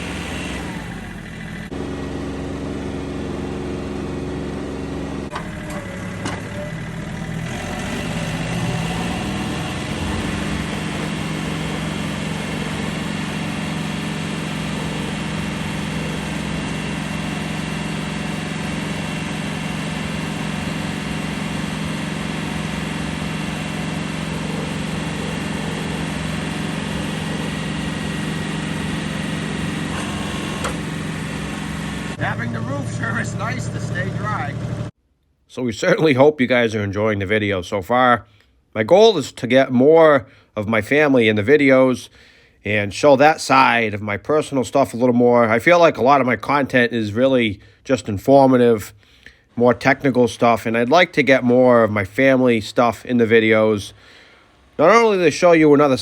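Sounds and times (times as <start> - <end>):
snow-clearing machine engine: 0.0 - 35.0, 45.0 - 56.0.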